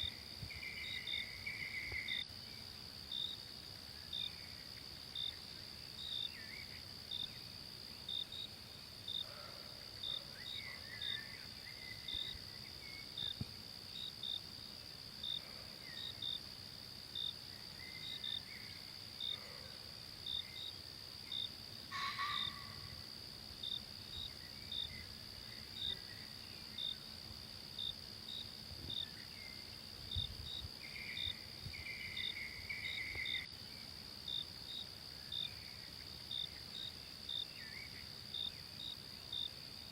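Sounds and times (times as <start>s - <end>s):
insect chirps: 0.0s - 39.9s
insects droning: 0.0s - 39.9s.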